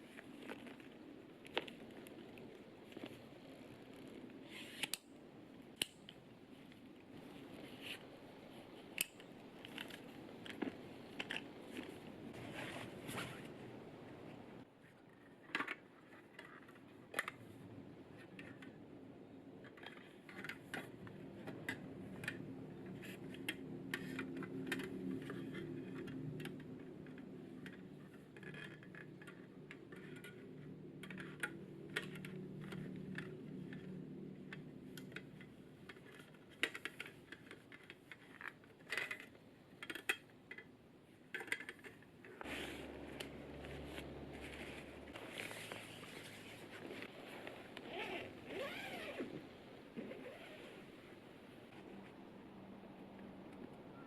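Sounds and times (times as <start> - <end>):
low steady hum: 41.0 - 54.0.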